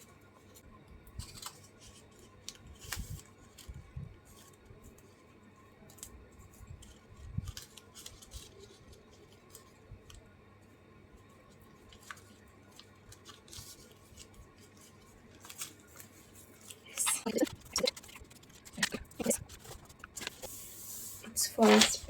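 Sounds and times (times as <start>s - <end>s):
paper and craft tools handled: 11.8s - 22.0s.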